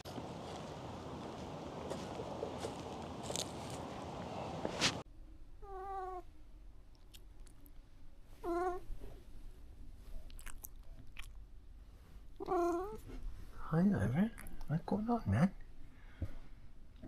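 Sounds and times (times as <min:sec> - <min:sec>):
cat meowing: 0:05.6 - 0:06.2, 0:08.4 - 0:08.8, 0:12.4 - 0:13.0.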